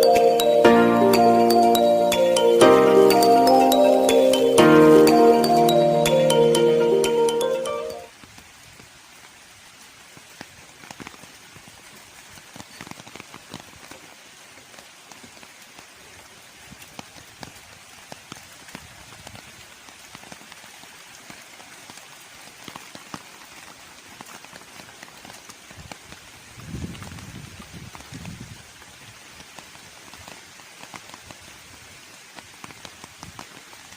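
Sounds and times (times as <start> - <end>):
raindrops ticking: 0.0 - 8.0
rain hissing: 0.0 - 31.1.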